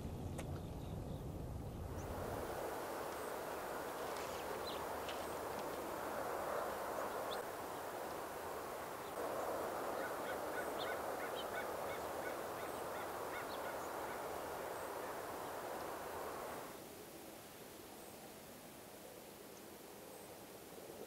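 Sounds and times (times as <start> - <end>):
steady rushing background: 1.4 - 16.7
higher bird calls: 2.9 - 8.0, 8.9 - 16.6.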